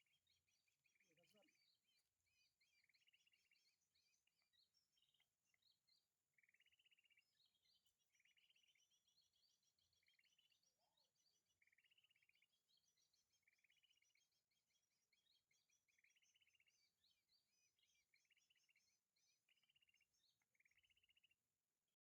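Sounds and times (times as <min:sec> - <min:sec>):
birds trilled chirps: 0:00.0 - 0:22.0.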